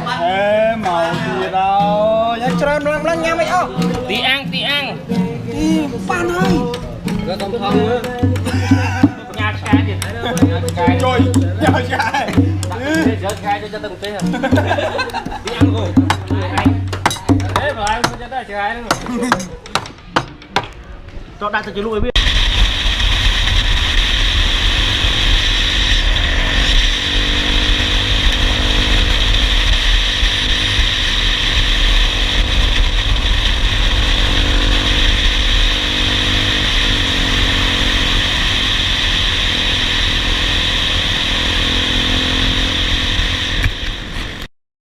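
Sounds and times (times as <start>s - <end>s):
dirt bike engine running: 7.8s - 18.2s, 22.2s - 44.5s.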